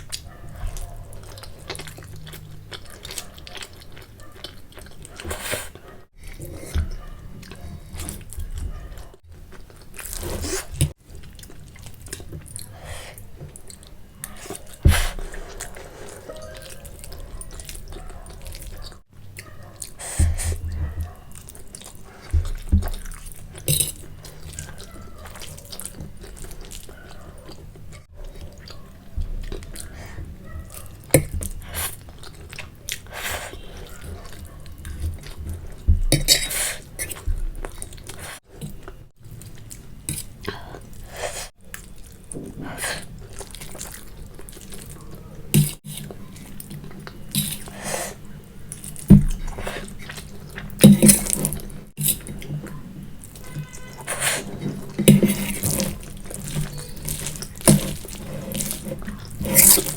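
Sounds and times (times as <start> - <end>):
wet chewing and mouth sounds: 0.0 - 59.9
noodle slurping: 53.3 - 59.9.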